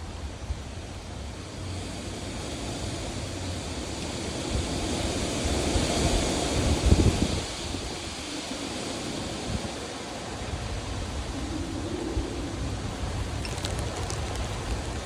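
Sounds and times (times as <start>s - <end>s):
heavy rain falling: 13.1s - 15.0s.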